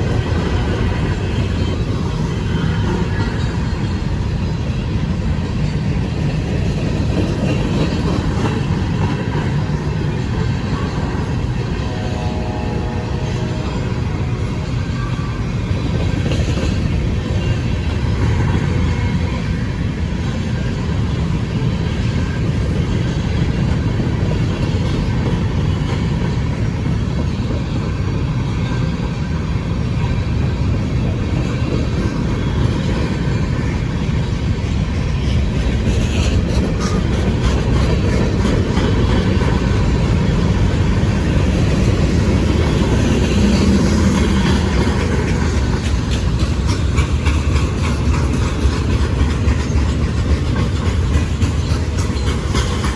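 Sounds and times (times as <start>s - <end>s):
diesel train running on rails: 0.0s - 52.9s.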